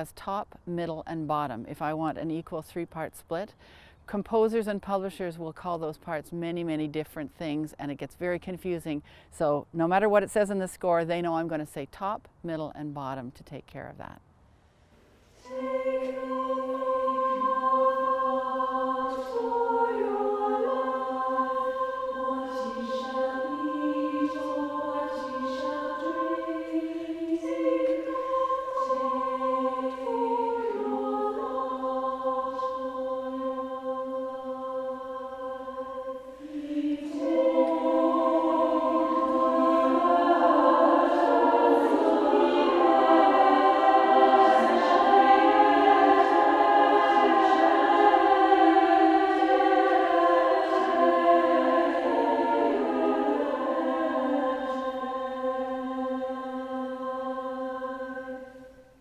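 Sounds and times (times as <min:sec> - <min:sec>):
women's choir singing: 0:15.4 - 0:58.9.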